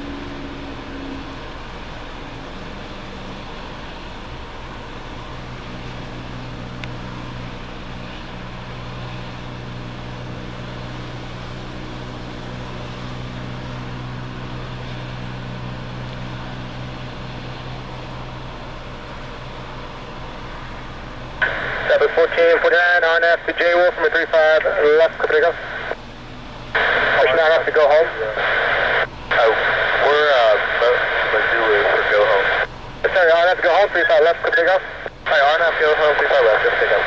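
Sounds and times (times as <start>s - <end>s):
low engine hum: 0.0s - 37.0s
constant hiss: 21.0s - 37.0s.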